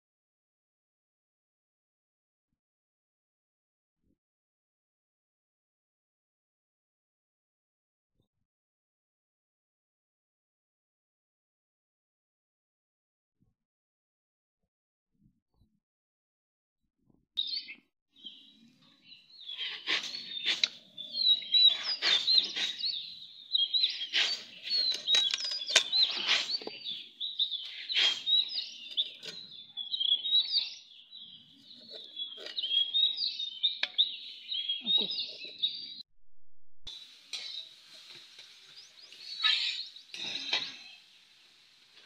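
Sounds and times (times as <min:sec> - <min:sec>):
small birds chirping rapidly: 0:17.4 - 0:36.0, 0:38.4 - 0:42.0.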